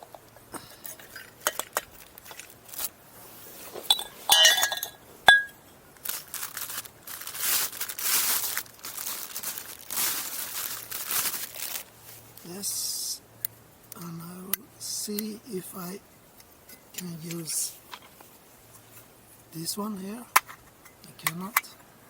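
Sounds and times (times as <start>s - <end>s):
rustling: 0.0s - 12.9s, 16.3s - 21.9s
metal parts clinking and knocking: 0.1s - 2.5s, 3.9s - 5.6s.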